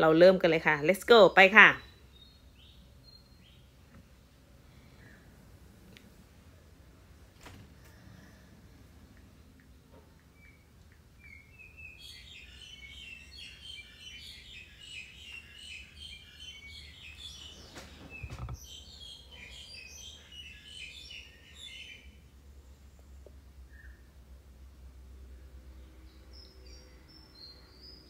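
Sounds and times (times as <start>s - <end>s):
faint birds twittering: 0.0s - 28.0s
dull thump: 17.8s - 18.6s.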